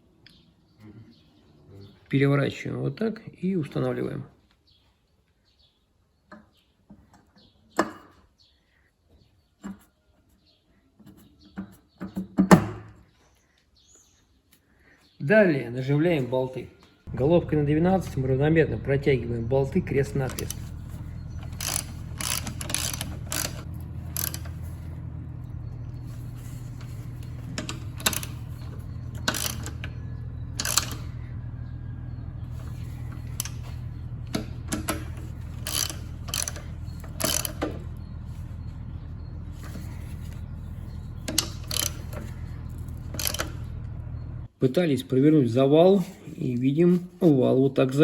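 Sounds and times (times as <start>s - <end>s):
low hum: 17.1s - 44.5s
ratchet wrench clicking: 20.3s - 24.7s, 26.8s - 31.2s, 33.2s - 37.8s, 41.3s - 43.7s.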